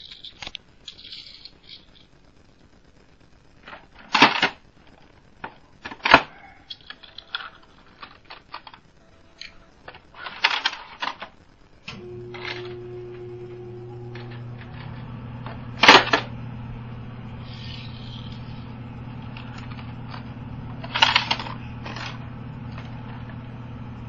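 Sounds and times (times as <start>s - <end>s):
small hard objects clicking: 0.0s - 2.3s, 3.6s - 11.4s
steady low hum: 7.0s - 24.0s.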